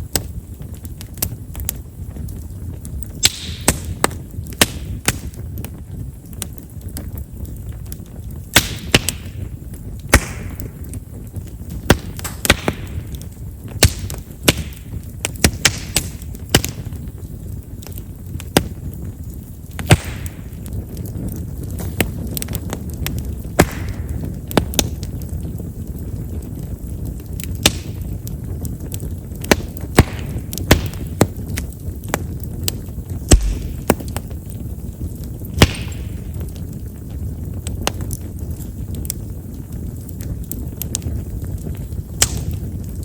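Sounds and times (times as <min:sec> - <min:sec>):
campfire crackling and popping: 0:00.0 - 0:43.0
low rumble of fire: 0:00.0 - 0:43.0.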